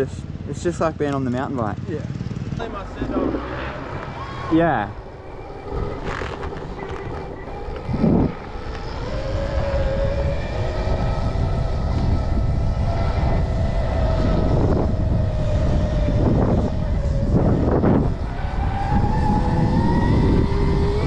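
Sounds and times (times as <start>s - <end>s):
low rumble: 2.5s - 18.2s
electric motor whining: 2.6s - 21.0s.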